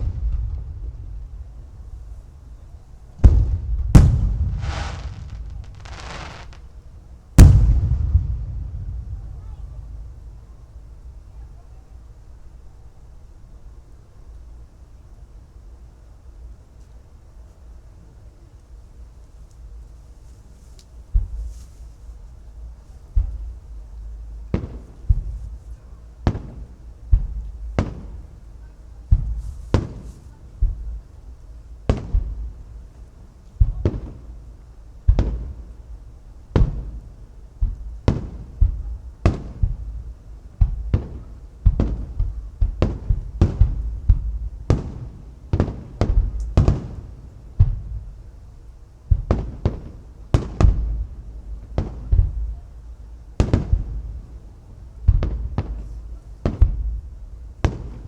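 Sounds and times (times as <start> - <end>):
firework shells booming: 0.0 - 2.4, 3.2 - 10.5
low rumble of echoes: 0.0 - 11.9.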